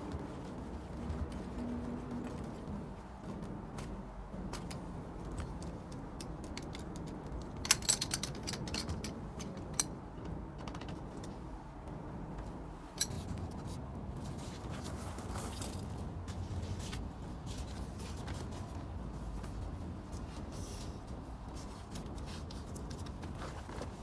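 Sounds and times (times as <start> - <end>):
metallic clinks: 6.2 - 9.9.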